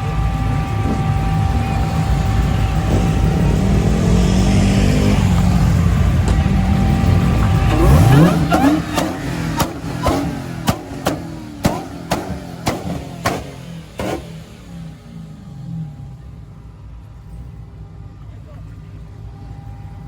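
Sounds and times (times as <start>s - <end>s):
car engine rumbling and revving: 0.0s - 20.0s
sharp cracks: 8.1s - 14.3s.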